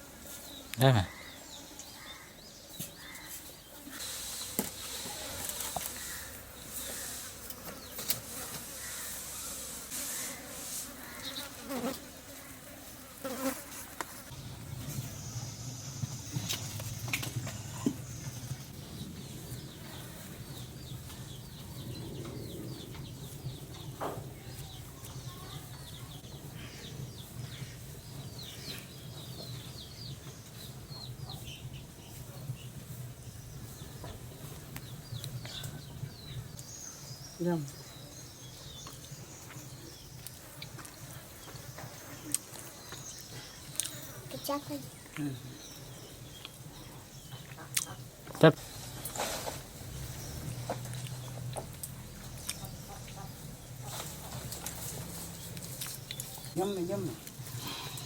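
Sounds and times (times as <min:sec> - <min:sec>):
flying insect buzzing: 0:03.8 - 0:14.4.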